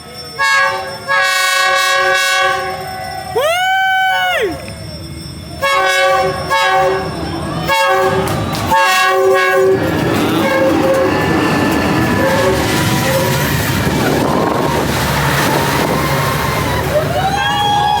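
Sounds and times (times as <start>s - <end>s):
train rumbling past: 0.0s - 18.0s
train horn blasts: 0.4s - 2.8s, 5.6s - 11.4s, 12.0s - 13.5s.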